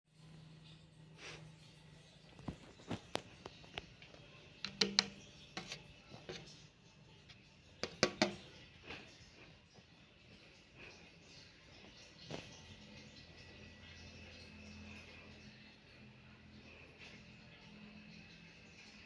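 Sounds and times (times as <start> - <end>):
sharp clicks and knocks: 4.6 - 6.4, 7.8 - 8.5.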